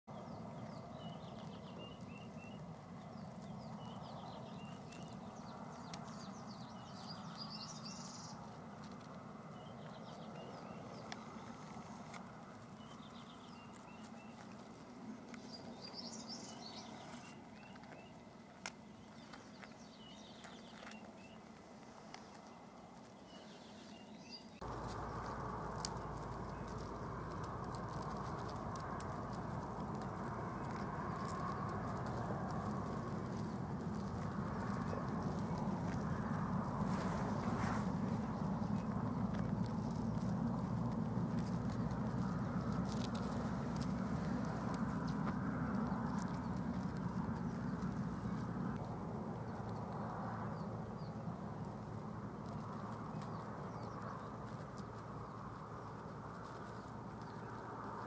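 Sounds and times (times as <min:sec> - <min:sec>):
small birds chirping: 0:00.1 - 0:58.0
low rumble: 0:24.6 - 0:58.0.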